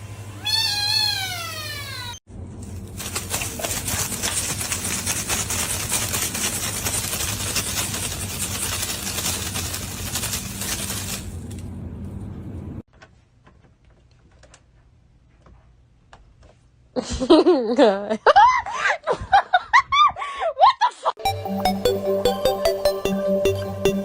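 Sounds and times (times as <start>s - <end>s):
cat meowing: 0.4s - 2.2s
crackly rustling noise: 2.5s - 11.7s.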